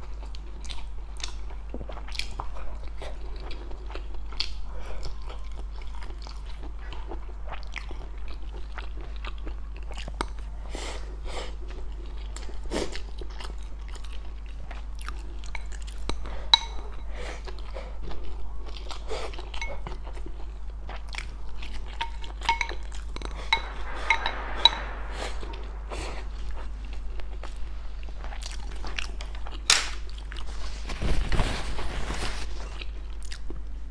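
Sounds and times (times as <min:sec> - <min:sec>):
person chewing crunchy food: 0:00.1 - 0:23.7.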